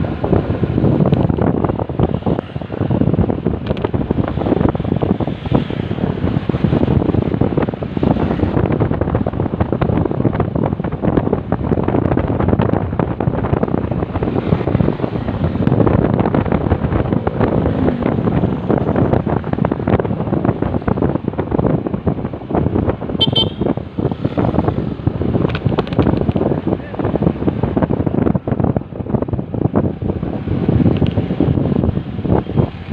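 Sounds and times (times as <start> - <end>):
road noise: 0.0 - 32.9
wind buffeting microphone: 0.0 - 32.9
motorcycle engine: 0.9 - 21.4.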